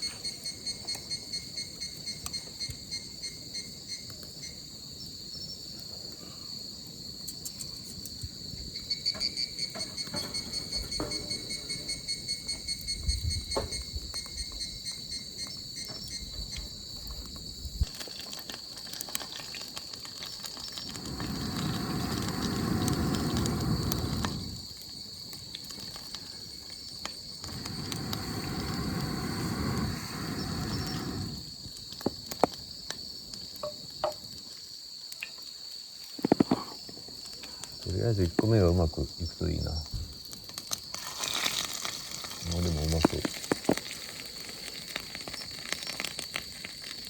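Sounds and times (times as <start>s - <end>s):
insects chirping: 0.0s - 47.0s
rushing noise: 20.9s - 24.6s, 27.5s - 31.4s.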